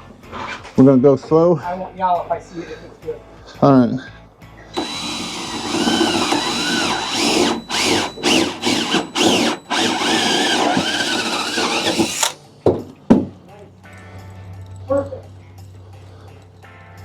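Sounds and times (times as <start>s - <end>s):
power drill boring through wood: 4.8s - 12.4s.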